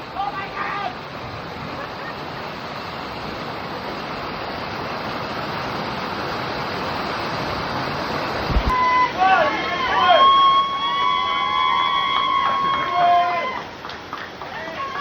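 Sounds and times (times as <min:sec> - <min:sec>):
rushing water of waterfall: 0:00.0 - 0:15.0
low thump: 0:08.4 - 0:08.8.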